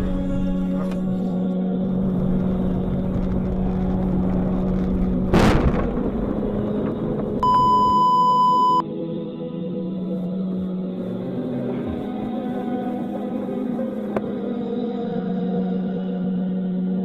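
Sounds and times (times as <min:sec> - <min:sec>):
car engine and road noise: 0:00.1 - 0:08.5
electronic beep: 0:07.4 - 0:08.8.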